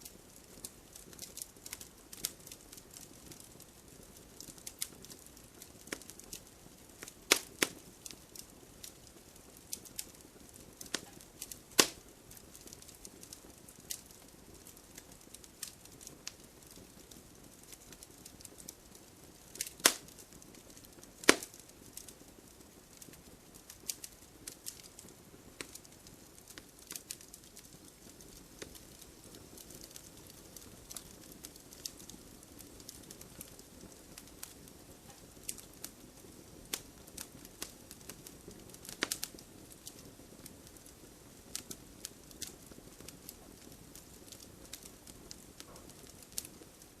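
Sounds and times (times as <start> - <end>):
flame hissing: 0.0 - 47.0
wood fire crackling: 0.0 - 47.0.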